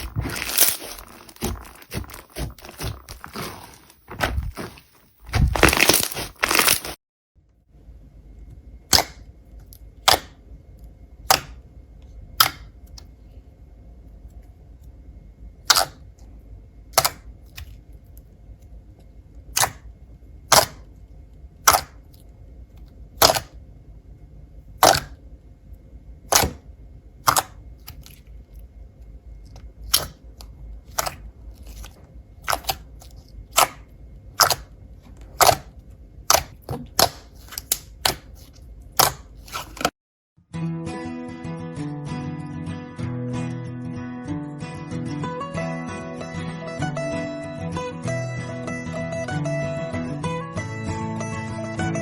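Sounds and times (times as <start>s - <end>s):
slime popping: 0.0s - 7.0s, 20.5s - 20.8s, 21.6s - 22.0s, 23.2s - 23.6s, 24.8s - 25.2s, 26.3s - 26.6s, 27.2s - 28.2s, 30.9s - 33.8s, 34.4s - 34.7s, 35.3s - 35.7s, 36.3s - 39.9s.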